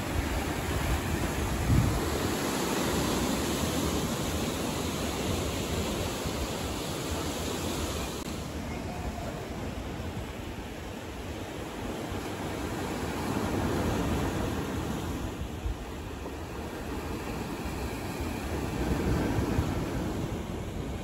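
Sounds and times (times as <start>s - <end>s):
wind buffeting microphone: 0.0s - 7.6s
sea surf washing on shore: 0.0s - 21.0s.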